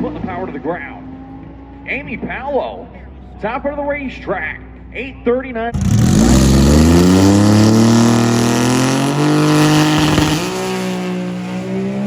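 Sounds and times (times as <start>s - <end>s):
drag racing car accelerating: 0.0s - 2.9s, 5.7s - 12.0s
engine gear shifts: 5.7s - 12.0s.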